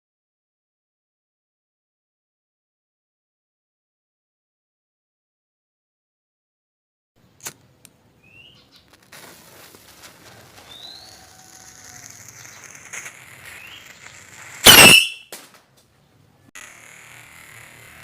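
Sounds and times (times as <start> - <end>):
firecracker bang: 14.6 - 15.6.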